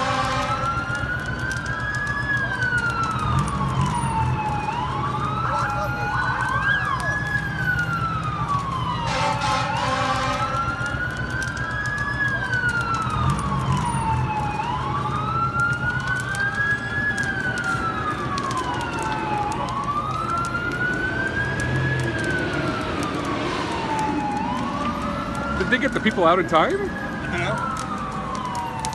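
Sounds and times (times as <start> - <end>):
fainter second siren: 0.0 - 28.9
siren wailing: 0.0 - 28.9
harsh horn blast: 9.0 - 10.5.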